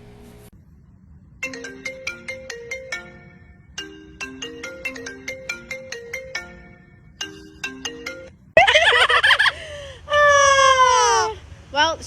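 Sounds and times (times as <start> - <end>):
marimba phone ringtone: 1.4 - 8.4.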